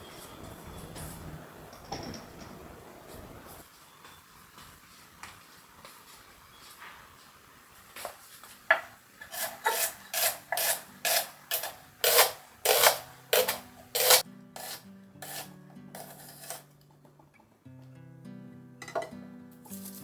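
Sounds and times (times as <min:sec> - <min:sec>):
rasping strokes: 0:09.2 - 0:16.7.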